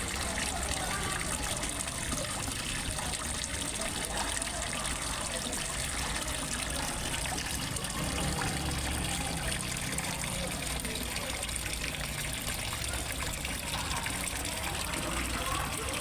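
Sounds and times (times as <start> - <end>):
water splashing into pond: 0.0 - 16.0.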